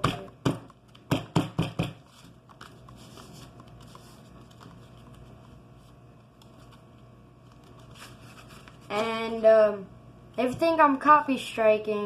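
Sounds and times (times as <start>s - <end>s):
low steady hum: 0.0s - 12.0s
paper rustling and crinkling: 2.1s - 9.2s.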